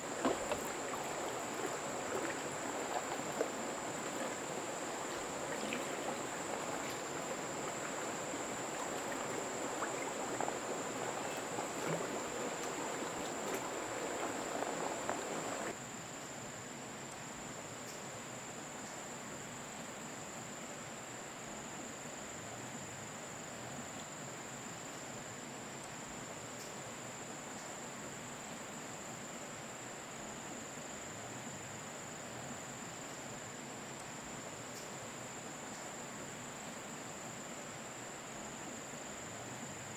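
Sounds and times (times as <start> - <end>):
insects droning: 0.0 - 15.8, 28.3 - 39.9
water splashing and flowing: 0.0 - 15.8.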